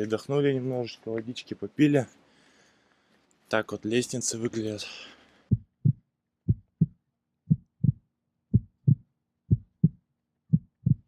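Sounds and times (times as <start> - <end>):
heartbeat: 5.5 - 11.0.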